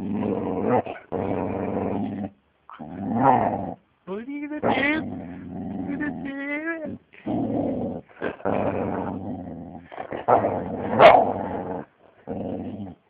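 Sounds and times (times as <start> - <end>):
young dog growling: 0.0 - 3.8, 4.6 - 13.0.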